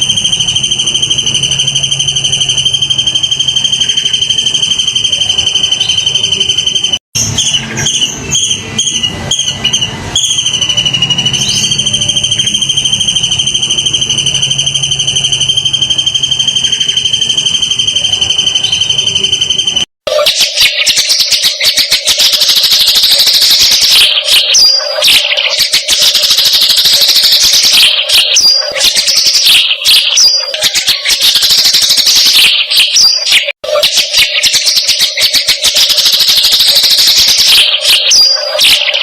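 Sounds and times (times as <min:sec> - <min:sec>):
cricket trilling: 0:00.0 - 0:07.0, 0:09.4 - 0:19.8
chirps and falling notes: 0:00.0 - 0:39.0.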